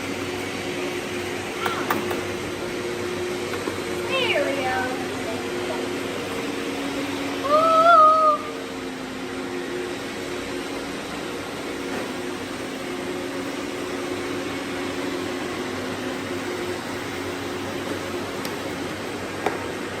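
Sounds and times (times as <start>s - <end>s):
robot vacuums whirring: 0.1s - 20.0s.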